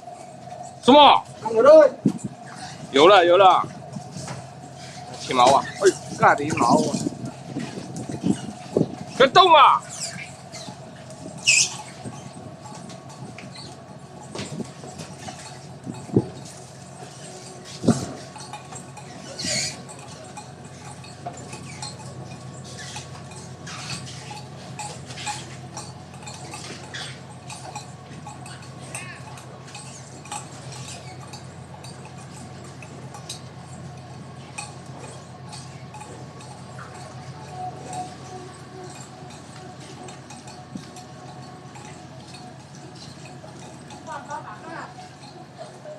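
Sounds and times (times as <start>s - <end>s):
ship machinery hum: 0.0s - 45.9s
gear clicking and clinking: 4.1s - 45.9s
short high squeak: 11.4s - 12.3s.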